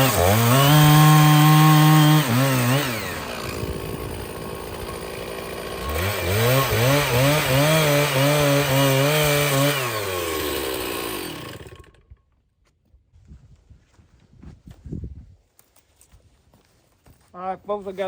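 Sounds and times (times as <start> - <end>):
chainsaw cutting log: 0.0 - 12.2.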